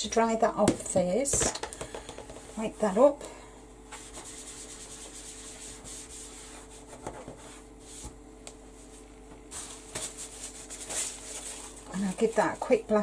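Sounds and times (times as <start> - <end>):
soft rubbing of wiping by hand: 3.9 - 12.7.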